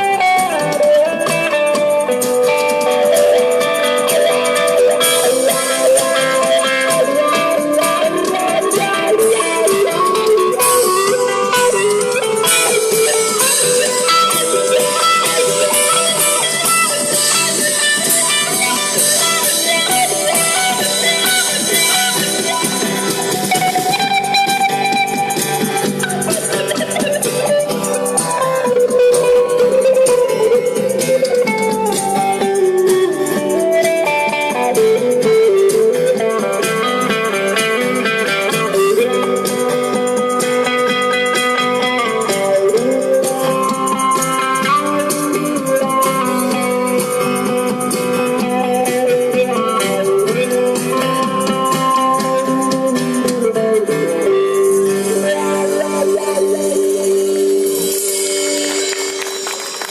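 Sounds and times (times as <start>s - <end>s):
drums keeping the beat: 0.0s - 59.9s
guitar: 0.0s - 59.9s
live rock band playing: 0.0s - 59.9s.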